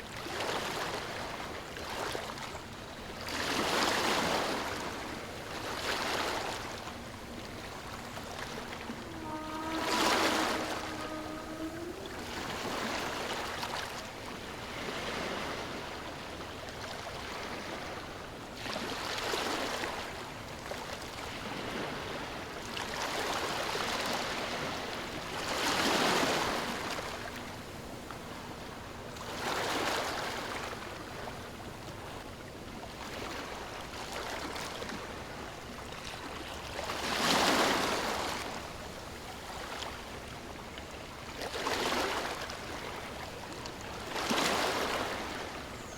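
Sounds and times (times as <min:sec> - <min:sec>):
ocean waves washing on shore: 0:00.0 - 0:32.2.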